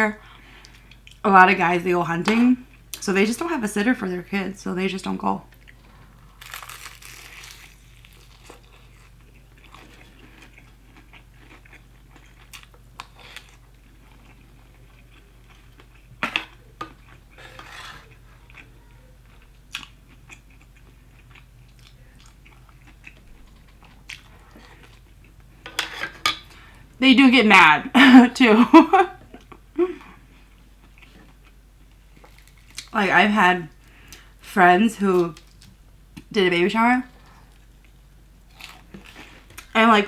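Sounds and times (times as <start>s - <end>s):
biting crunchy fried chicken: 6.3s - 16.7s, 38.5s - 39.6s.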